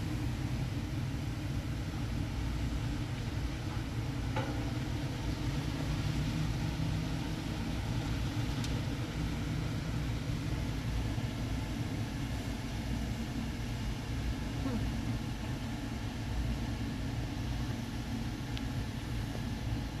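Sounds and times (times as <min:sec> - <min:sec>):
car wash rumble: 0:00.0 - 0:20.0.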